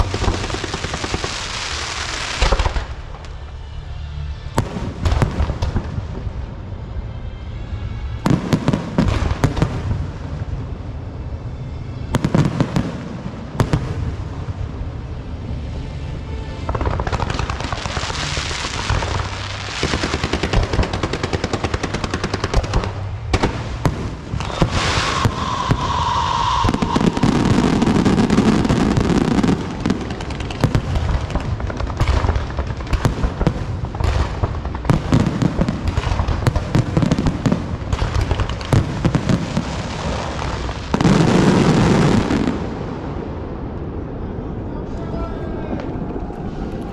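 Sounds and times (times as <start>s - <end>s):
firework bangs: 0.0s - 3.5s, 16.7s - 43.5s
firecrackers crackling: 0.0s - 3.6s, 16.6s - 44.0s
firework whistle: 24.3s - 30.0s.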